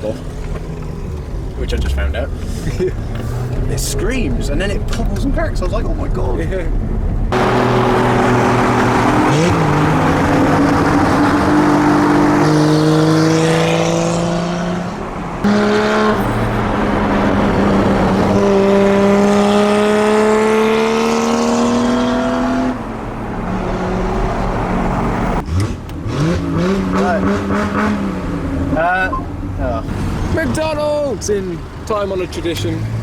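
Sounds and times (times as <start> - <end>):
car engine accelerating through gears: 7.3 - 30.5.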